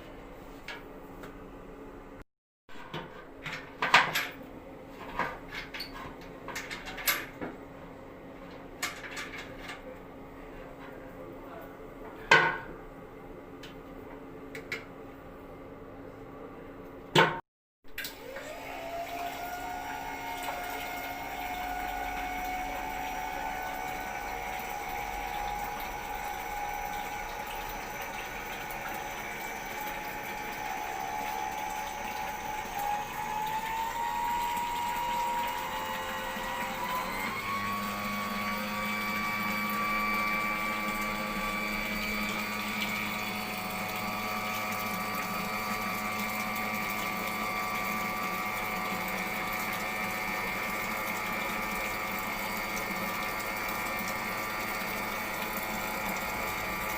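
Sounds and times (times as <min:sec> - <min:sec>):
electric pump whine: 0:18.0 - 0:56.9.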